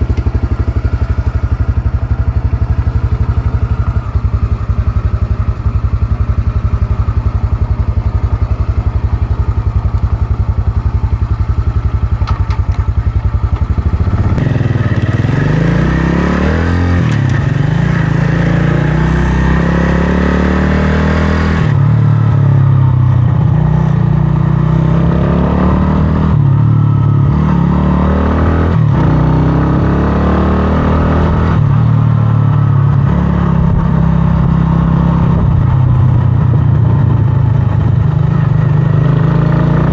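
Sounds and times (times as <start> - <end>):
motorcycle engine idling: 0.0 - 15.8, 35.4 - 38.9
motorcycle accelerating through gears: 0.0 - 39.9.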